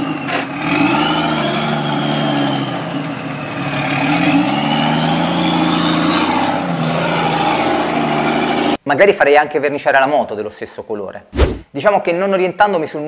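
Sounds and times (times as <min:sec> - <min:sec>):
engine revving under load: 0:00.0 - 0:08.8.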